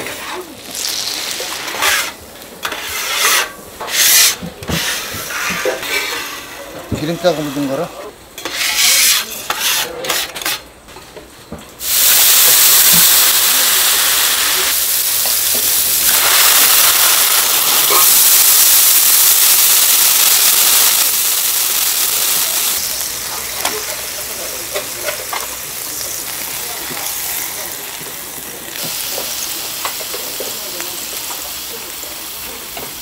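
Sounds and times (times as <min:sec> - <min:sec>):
utensils clattering in pan: 0:00.0 - 0:06.5
food sizzling on hot pan: 0:00.0 - 0:07.8, 0:11.8 - 0:33.0.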